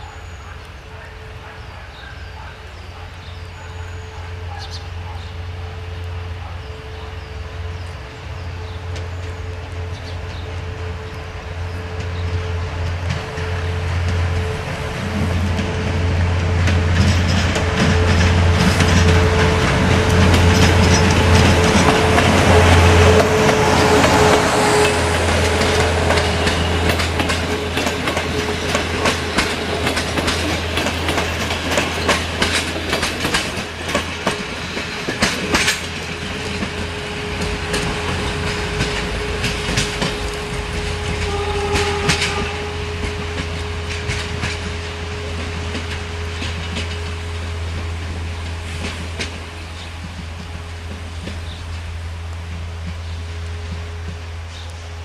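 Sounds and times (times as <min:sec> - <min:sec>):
locomotive engine drone: 0:00.0 - 0:55.0
train wheels clicking over rail joints: 0:08.6 - 0:55.0.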